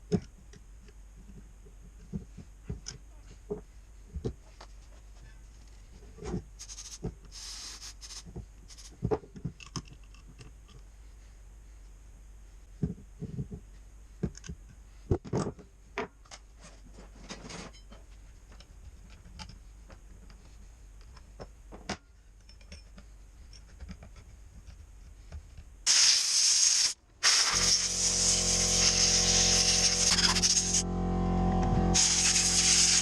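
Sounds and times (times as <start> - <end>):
loud hiss: 6.6 - 8.9, 25.9 - 30.8, 31.9 - 33.0
low hum: 27.0 - 33.0.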